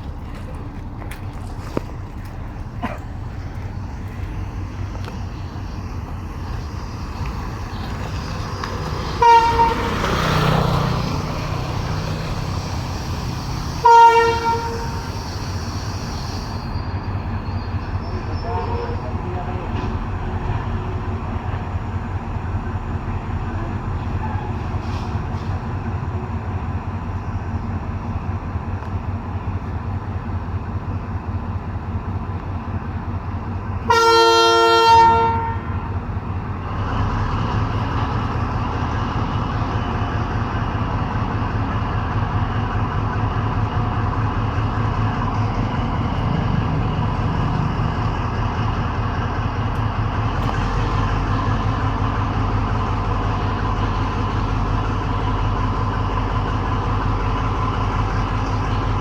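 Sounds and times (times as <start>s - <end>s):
train diesel engine running: 0.0s - 59.0s
train horn: 9.0s - 10.6s, 13.7s - 16.5s, 18.3s - 19.6s, 33.8s - 36.0s.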